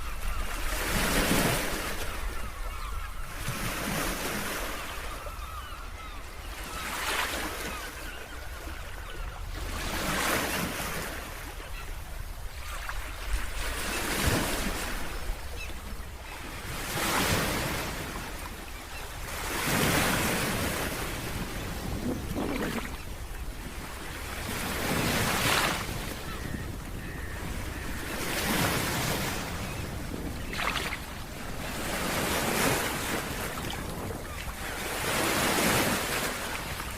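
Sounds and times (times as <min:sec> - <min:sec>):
ocean waves breaking: 0:09.6 - 0:36.9
wind rumble on microphone: 0:20.5 - 0:23.8, 0:26.0 - 0:32.1.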